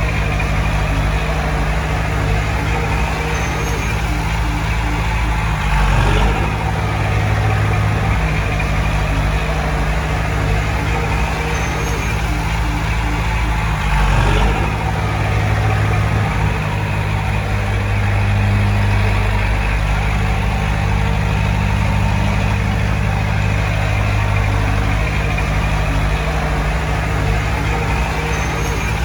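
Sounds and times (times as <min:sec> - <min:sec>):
heavy diesel engine running: 0:00.0 - 0:29.0.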